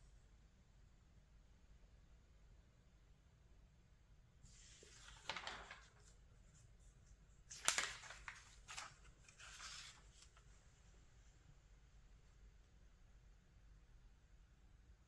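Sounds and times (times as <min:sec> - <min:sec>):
crisp page flick: 0:04.5 - 0:06.1, 0:07.5 - 0:10.4
paper pages rustling: 0:04.5 - 0:10.9.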